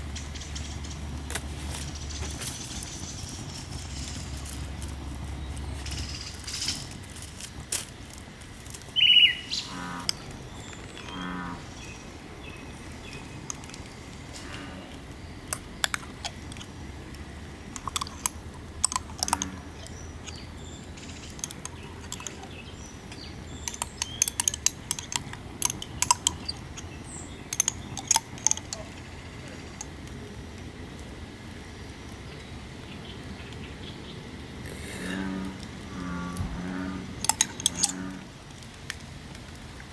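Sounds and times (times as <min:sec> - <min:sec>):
frogs croaking: 0:00.0 - 0:30.7, 0:31.6 - 0:38.7
sharp bird chirp: 0:09.0 - 0:10.3
clicks and knocks: 0:23.1 - 0:26.9.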